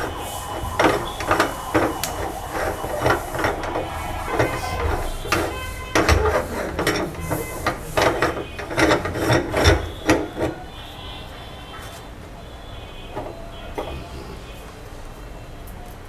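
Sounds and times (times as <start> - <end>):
rasping grind: 0.0 - 10.7.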